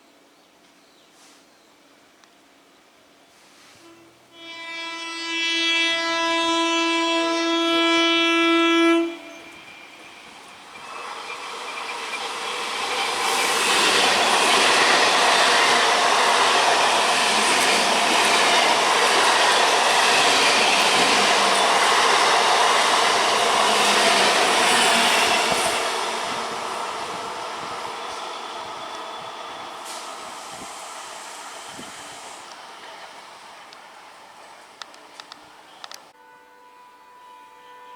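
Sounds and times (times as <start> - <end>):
train horn blast: 3.7 - 11.0, 36.2 - 37.9
train passing at speed: 4.3 - 36.2.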